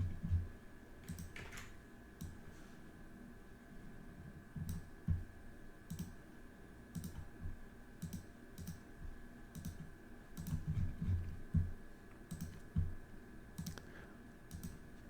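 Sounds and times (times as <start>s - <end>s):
faint steady hum: 0.0s - 15.0s
computer mouse clicks: 1.0s - 2.4s, 4.6s - 5.2s, 5.9s - 6.2s, 6.9s - 7.3s, 8.0s - 8.8s, 9.5s - 11.6s, 12.2s - 12.9s, 13.6s - 13.9s, 14.5s - 14.8s
keyboard clicks: 1.0s - 2.4s, 4.6s - 4.9s, 5.9s - 6.2s, 6.9s - 7.3s, 8.0s - 8.8s, 9.5s - 10.9s, 12.3s - 12.9s, 13.6s - 13.9s, 14.5s - 14.8s.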